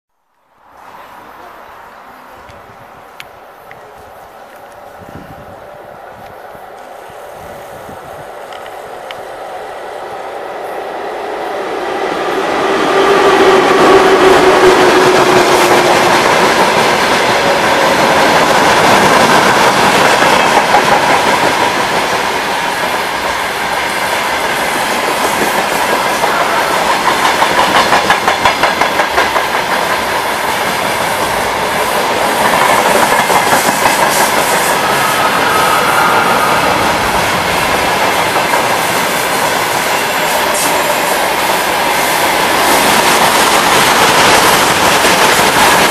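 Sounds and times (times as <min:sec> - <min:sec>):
electric locomotive steady tone: 0:00.6 - 0:45.9
freight train wheels rumbling: 0:00.7 - 0:45.9
clickety-clack over rail joints: 0:08.1 - 0:09.2, 0:13.5 - 0:45.9.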